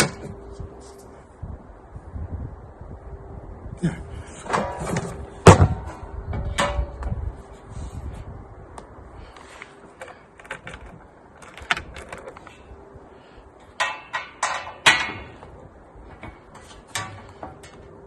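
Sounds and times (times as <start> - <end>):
metal parts clanking: 13.6 - 15.5, 16.2 - 17.9.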